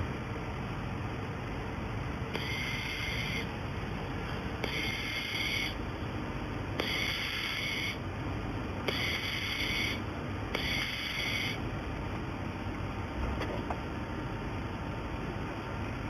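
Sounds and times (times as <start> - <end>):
steady background hum: 0.0 - 16.0
welding machine whine: 2.2 - 3.7, 4.5 - 5.9, 6.7 - 8.1, 8.8 - 11.6.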